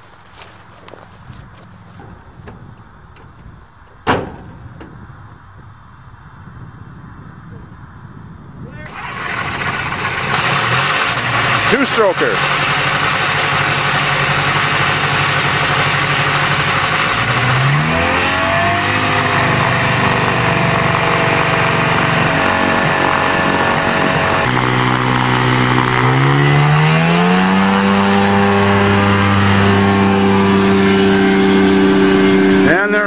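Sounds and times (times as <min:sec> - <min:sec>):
small airplane engine revving: 0:08.9 - 0:33.0.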